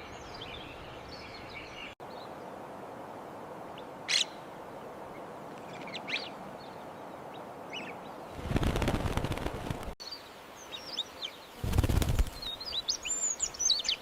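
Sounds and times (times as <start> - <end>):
steady outdoor hiss: 0.0 - 14.0
wings flapping: 8.3 - 10.0, 11.6 - 12.5.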